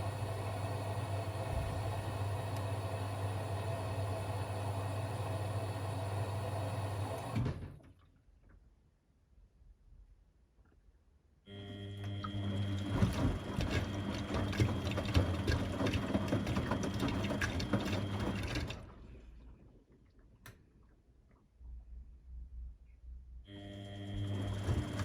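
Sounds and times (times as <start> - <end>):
washing machine drum motor whine: 0.0 - 7.6, 11.5 - 19.0, 23.5 - 25.0.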